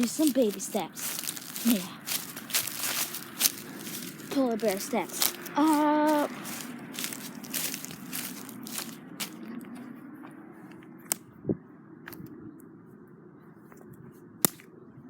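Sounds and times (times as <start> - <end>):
sticks and twigs snapping: 0.0 - 9.4, 14.4 - 14.7.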